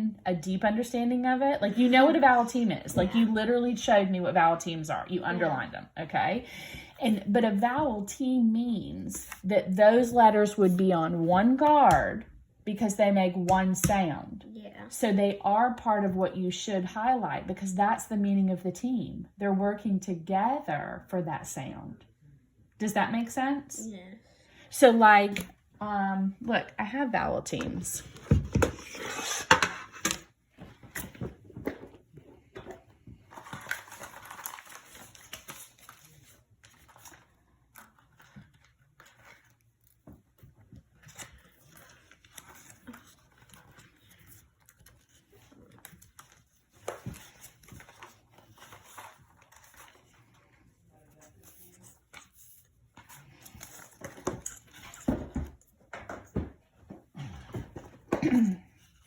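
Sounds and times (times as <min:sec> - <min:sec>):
paper rustling: 0:33.2 - 0:55.2.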